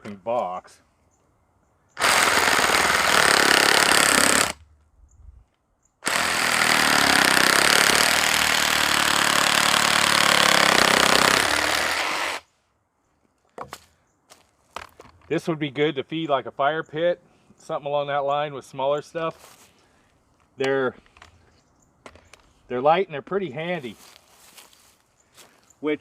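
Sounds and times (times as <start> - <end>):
reciprocating saw cutting wood: 2.0 - 4.6, 6.0 - 12.5.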